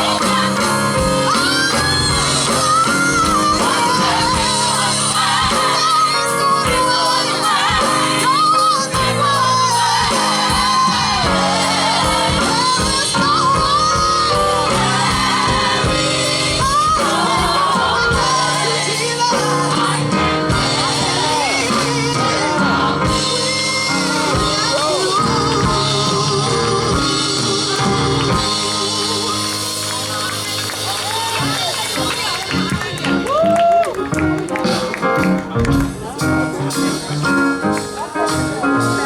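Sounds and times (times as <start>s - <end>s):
lead singer wavering voice: 0.0s - 29.8s
gospel band chords: 0.0s - 39.0s
steady drum beat: 0.0s - 39.0s.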